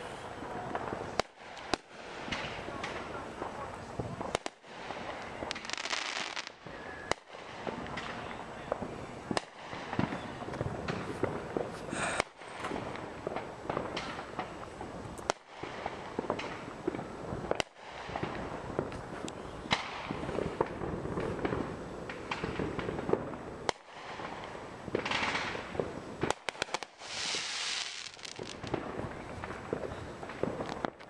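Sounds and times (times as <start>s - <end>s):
fireworks bangs and pops: 0.0s - 31.0s
fireworks hissing crackle: 0.0s - 31.0s.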